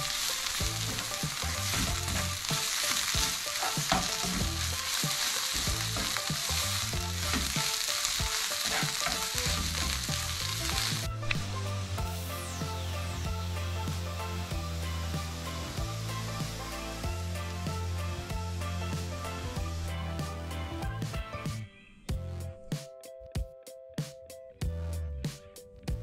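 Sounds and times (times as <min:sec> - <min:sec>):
onions sizzling in frying pan: 0:00.0 - 0:20.6
spatula scraping pan: 0:00.5 - 0:11.0.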